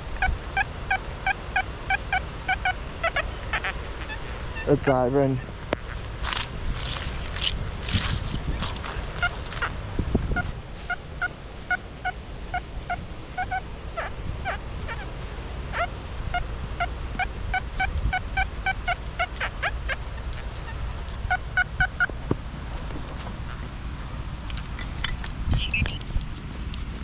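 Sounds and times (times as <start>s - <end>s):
wind rumble on microphone: 0.0s - 27.0s
metal detector beeping: 25.6s - 26.0s.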